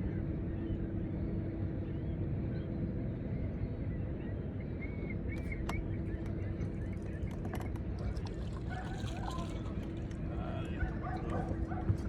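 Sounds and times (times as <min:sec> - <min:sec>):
faint steady hum: 0:00.0 - 0:12.0
boat motor droning: 0:05.3 - 0:12.0.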